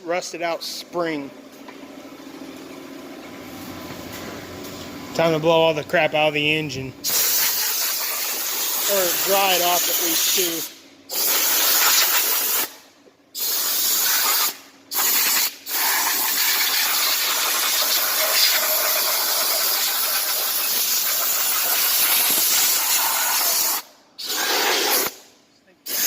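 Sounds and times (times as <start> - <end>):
compressed air blow gun blasting: 7.0 - 26.0.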